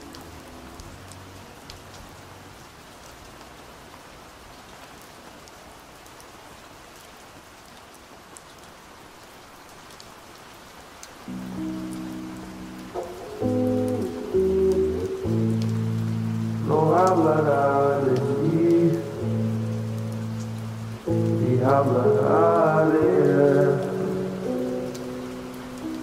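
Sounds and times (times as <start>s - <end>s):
steady rain with ticking drops: 0.0s - 26.0s
slowed muffled song: 11.3s - 25.0s
song low notes: 11.3s - 26.0s.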